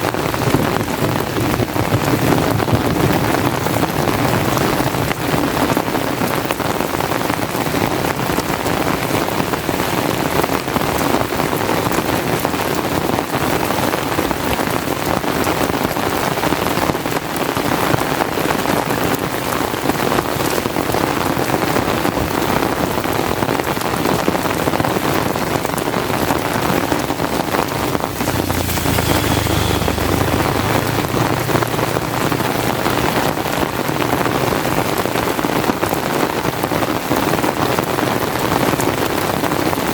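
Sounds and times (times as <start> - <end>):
heavy rain: 0.0 - 39.9
low rumble: 26.8 - 34.5.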